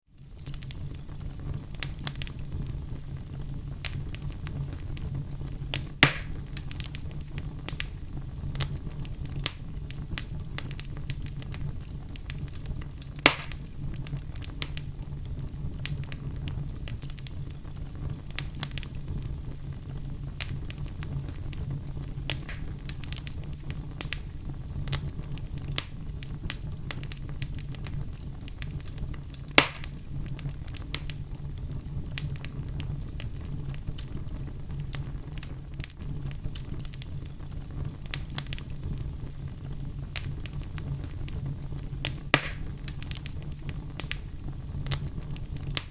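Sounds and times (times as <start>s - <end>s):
wood fire crackling: 0.1s - 45.9s
sharp pops from fire: 0.2s - 45.9s.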